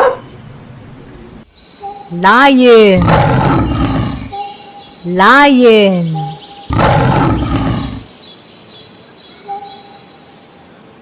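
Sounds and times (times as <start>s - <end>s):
lion roaring: 2.6s - 4.4s, 6.1s - 8.1s.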